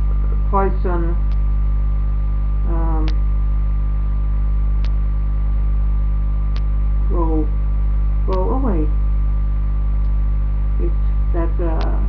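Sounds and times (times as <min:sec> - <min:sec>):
electrical mains hum: 0:00.0 - 0:12.0
faint clicks: 0:04.8 - 0:05.0, 0:06.5 - 0:06.7.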